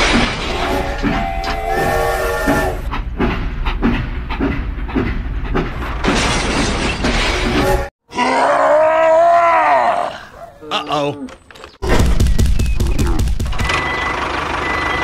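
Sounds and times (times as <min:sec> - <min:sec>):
train clickety-clack: 0:02.4 - 0:06.1.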